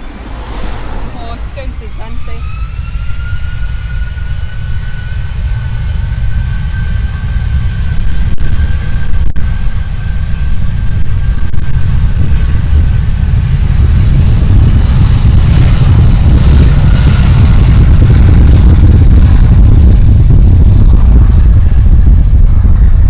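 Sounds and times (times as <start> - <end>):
jet engine hiss: 0.0 - 3.3
jet engines rumbling: 0.0 - 23.0.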